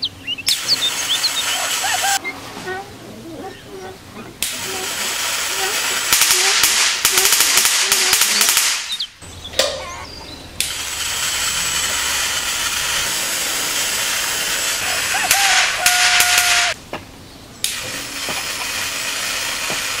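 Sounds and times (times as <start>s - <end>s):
electric arc hissing and crackling: 4.4s - 9.0s, 10.6s - 16.8s, 17.6s - 20.0s.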